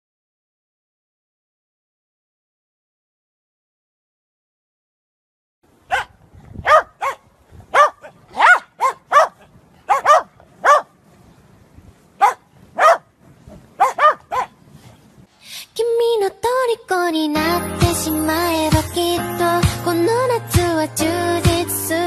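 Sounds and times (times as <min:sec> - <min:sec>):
small dogs barking: 0:05.9 - 0:11.0, 0:12.2 - 0:14.6.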